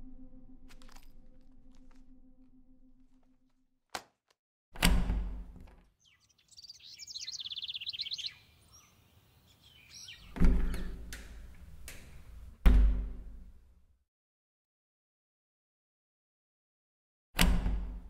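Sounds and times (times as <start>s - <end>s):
bird trilling: 6.0s - 10.8s.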